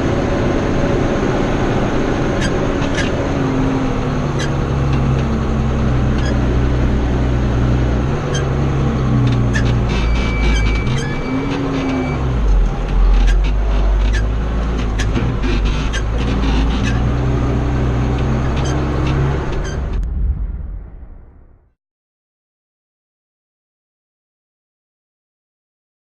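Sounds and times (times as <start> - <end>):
farm machinery engine running: 0.0 - 20.2.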